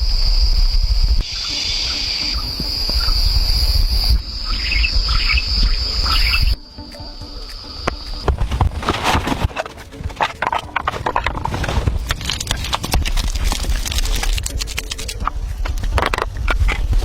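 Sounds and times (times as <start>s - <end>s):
low rumble: 0.0s - 1.3s
insects trilling: 0.0s - 8.8s
bird chirps: 1.2s - 8.3s.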